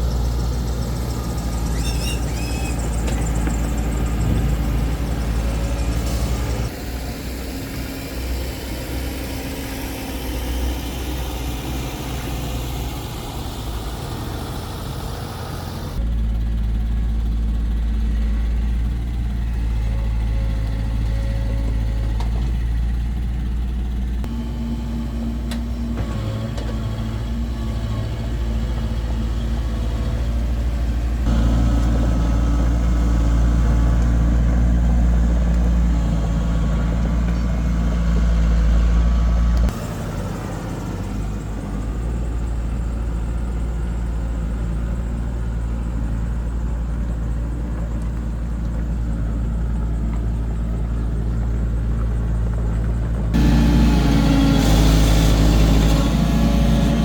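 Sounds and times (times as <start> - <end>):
heavy machinery diesel engine: 0.0 - 57.0.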